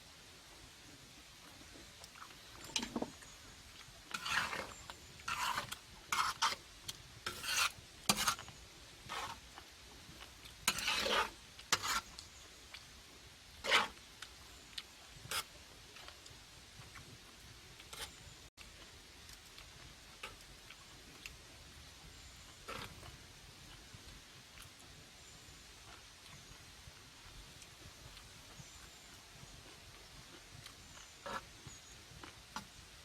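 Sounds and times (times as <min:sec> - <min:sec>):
metal utensils scraping a pan: 0:02.6 - 0:03.2, 0:04.1 - 0:06.6, 0:07.2 - 0:09.4, 0:10.6 - 0:12.2, 0:13.6 - 0:14.0, 0:17.9 - 0:18.2, 0:22.7 - 0:23.0, 0:31.2 - 0:31.5.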